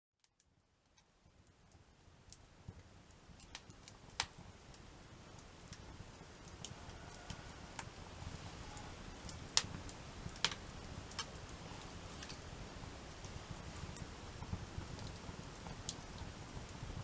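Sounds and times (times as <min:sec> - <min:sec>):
wood fire crackling: 0:00.2 - 0:17.0.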